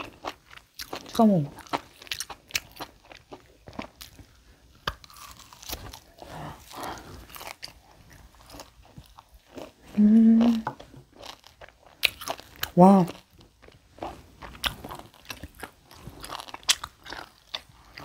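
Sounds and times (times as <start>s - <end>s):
chewing and biting steak: 0.0s - 9.8s, 10.5s - 18.0s
person humming with enjoyment: 9.9s - 10.8s.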